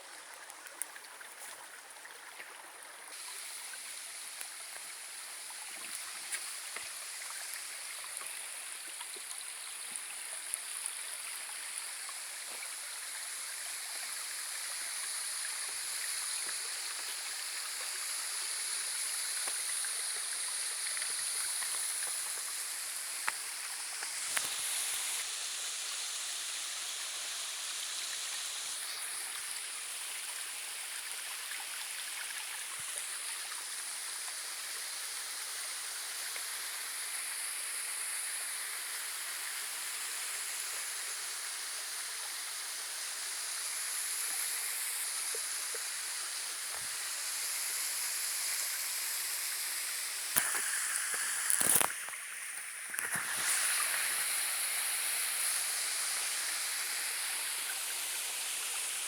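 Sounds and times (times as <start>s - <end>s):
stream water rushing: 49.5s - 59.0s.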